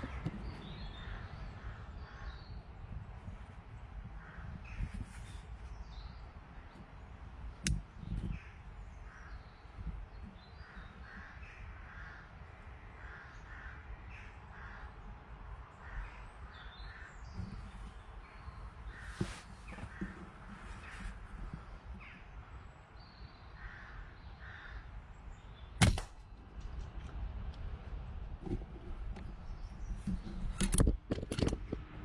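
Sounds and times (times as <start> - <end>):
low outdoor rumble: 0.0 - 32.0
sharp click: 30.5 - 31.7.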